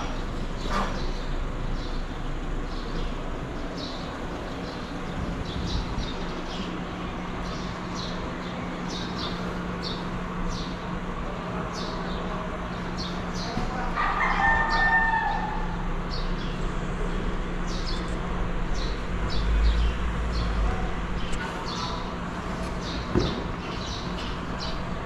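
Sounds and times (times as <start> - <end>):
steady hum: 0.0 - 14.0, 15.3 - 25.0
small birds chirping: 0.0 - 25.0
rooster crowing: 13.8 - 15.8.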